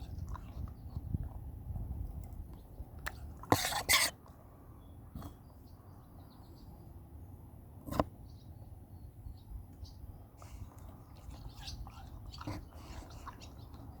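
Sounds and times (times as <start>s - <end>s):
dog chewing watermelon: 0.0s - 1.5s, 10.4s - 14.0s.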